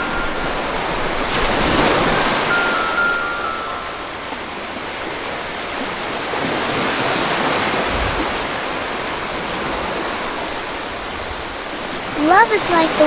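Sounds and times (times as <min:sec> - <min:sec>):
flowing water rushing: 0:00.0 - 0:13.0
soft held tones: 0:02.4 - 0:04.8.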